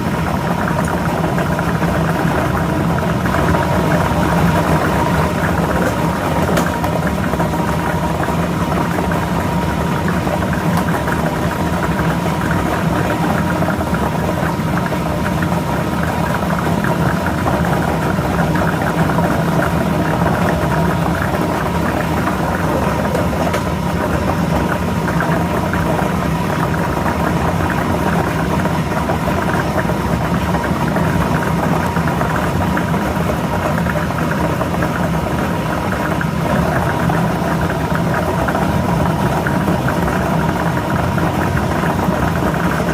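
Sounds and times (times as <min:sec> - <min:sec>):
motor and blower hum: 0:00.0 - 0:42.9.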